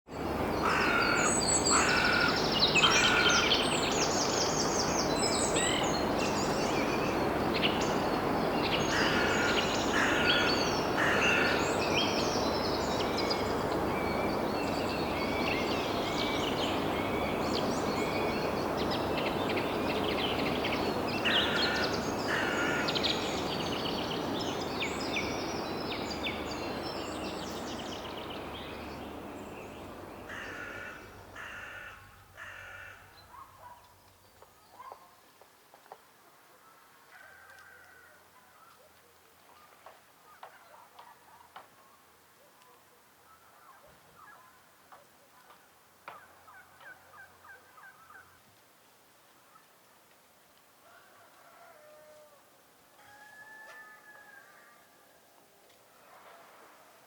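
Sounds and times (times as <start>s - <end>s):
wild birds chirping and singing: 0.1s - 35.1s, 43.2s - 44.8s, 45.4s - 48.4s
outdoor background noise: 0.1s - 57.0s.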